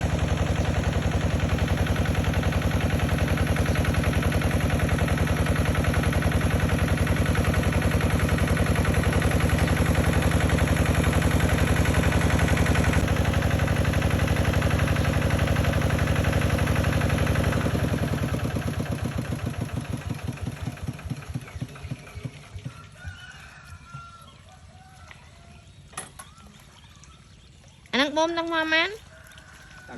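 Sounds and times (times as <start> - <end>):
engine running with rapid beat: 0.0 - 23.0.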